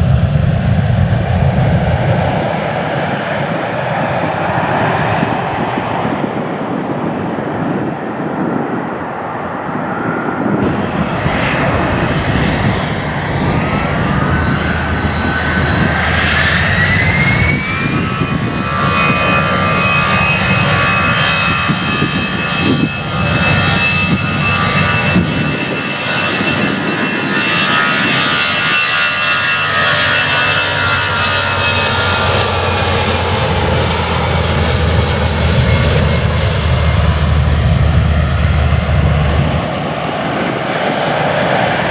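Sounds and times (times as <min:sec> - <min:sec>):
jet engine whine rising in pitch: 0:00.0 - 0:41.9
jet engines roaring: 0:00.0 - 0:41.9.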